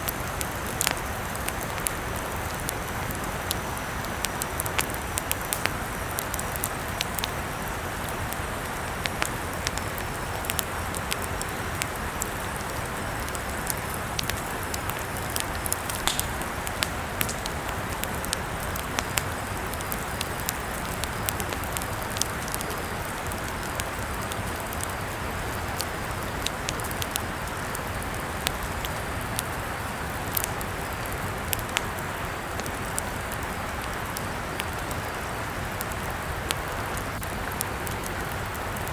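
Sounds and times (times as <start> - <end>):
campfire crackling: 0.0 - 38.9.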